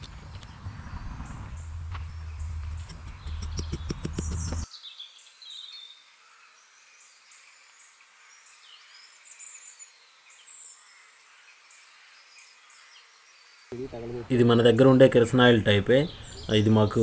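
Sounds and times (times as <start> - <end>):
high bird chirps: 0.3 - 4.8, 16.0 - 17.0.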